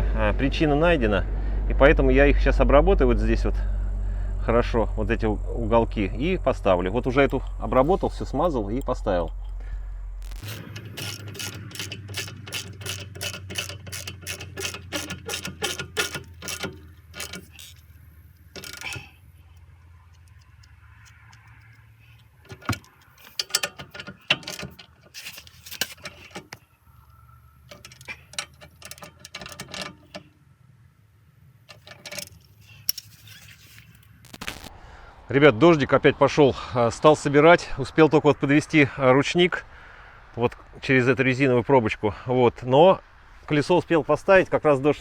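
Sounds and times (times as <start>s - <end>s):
ratchet wrench clicking: 10.3s - 30.3s, 31.7s - 34.0s.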